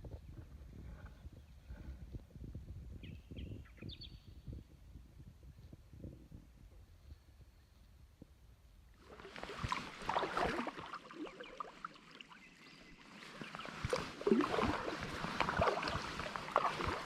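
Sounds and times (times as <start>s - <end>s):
paddle splashing in water: 9.0s - 17.0s.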